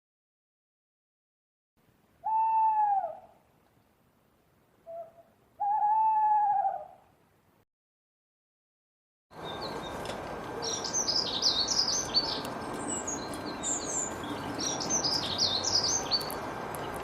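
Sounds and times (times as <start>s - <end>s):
owl hooting: 2.2s - 3.4s, 4.8s - 7.0s.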